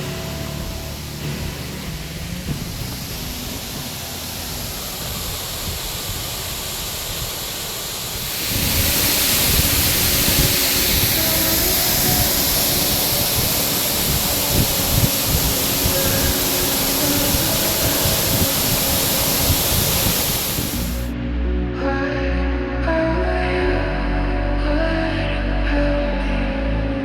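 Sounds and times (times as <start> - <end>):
waterfall roaring: 0.0 - 21.1.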